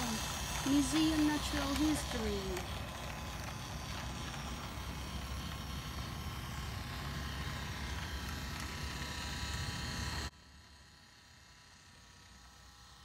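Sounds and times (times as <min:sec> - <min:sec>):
model train running with hum: 0:00.0 - 0:13.0.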